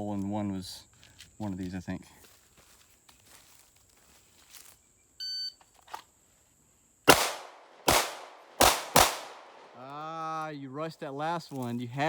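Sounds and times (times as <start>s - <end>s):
pistol shots: 7.1s - 9.8s.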